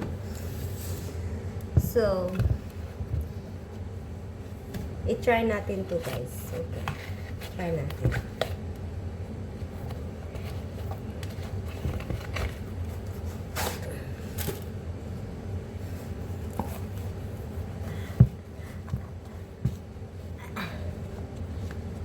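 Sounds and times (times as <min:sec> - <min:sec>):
steady low hum: 0:00.0 - 0:22.0
shoe handling scrapes and clicks: 0:09.6 - 0:14.7.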